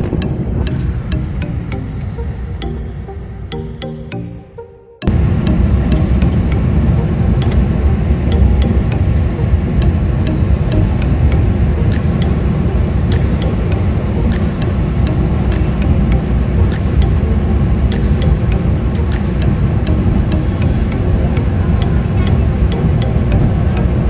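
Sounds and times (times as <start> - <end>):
music: 0.0 - 24.0
vehicle running rumble: 5.1 - 24.0
sharp clicks: 7.4 - 23.9.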